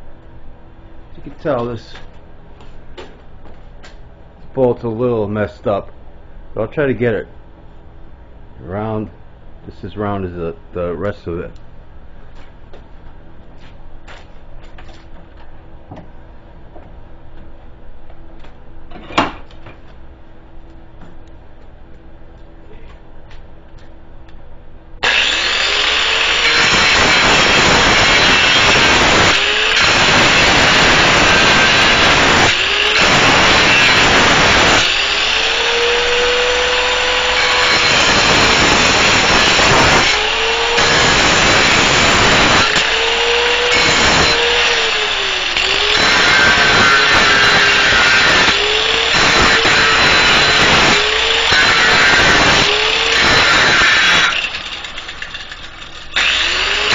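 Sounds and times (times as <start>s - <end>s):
angle grinder grinding metal bolt: 25.0s - 56.9s
grinder motor whine: 25.0s - 56.9s.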